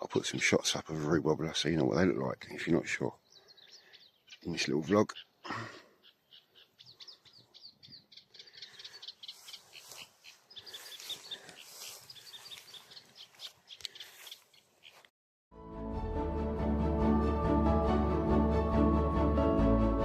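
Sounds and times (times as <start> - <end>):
bird singing chattering notes: 2.7 - 15.0.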